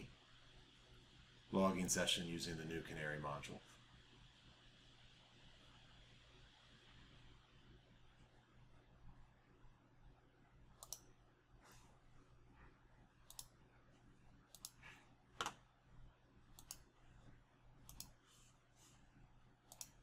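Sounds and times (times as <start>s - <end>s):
low steady hum: 0.0s - 20.0s
computer mouse clicks: 10.8s - 11.2s, 13.2s - 13.6s, 14.5s - 14.8s, 15.4s - 15.6s, 16.5s - 16.9s, 17.8s - 18.2s, 19.7s - 20.0s.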